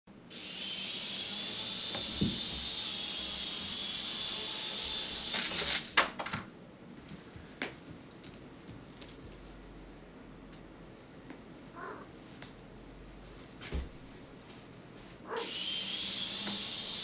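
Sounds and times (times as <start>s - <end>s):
small motor and rotor whine: 0.3s - 5.9s, 15.3s - 17.0s.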